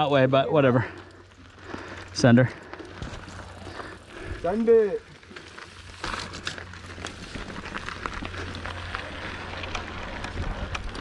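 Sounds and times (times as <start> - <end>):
tyres crackling over dirt and stones: 0.0 - 11.0
bike rattling clicks: 5.2 - 11.0.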